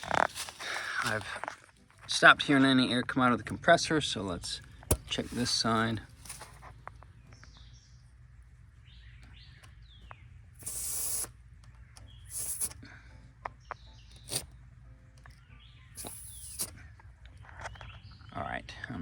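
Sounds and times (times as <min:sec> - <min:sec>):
air hissing from tire valve: 0:10.6 - 0:11.4, 0:12.1 - 0:12.9, 0:14.1 - 0:14.5, 0:16.0 - 0:16.9.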